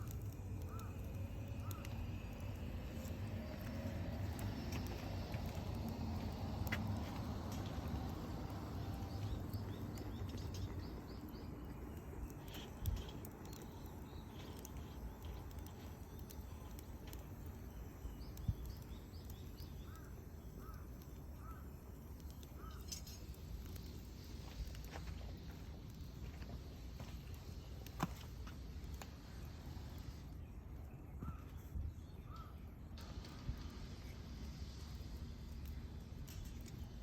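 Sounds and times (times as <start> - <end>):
birds chirping: 0.0 - 23.9
bonfire wood popping: 0.0 - 30.5, 31.1 - 37.0.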